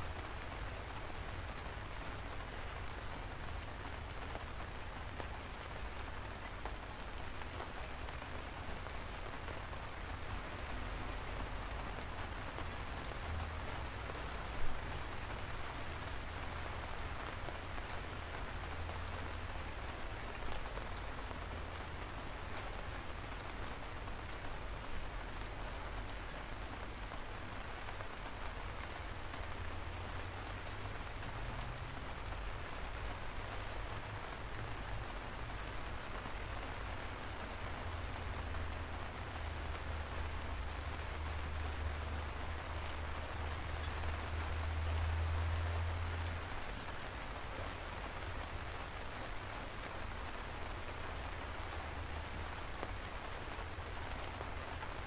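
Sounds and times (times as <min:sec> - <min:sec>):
steady rain hiss: 0:00.0 - 0:55.0
raindrop clicks: 0:12.7 - 0:13.3, 0:31.0 - 0:32.9, 0:40.6 - 0:42.0.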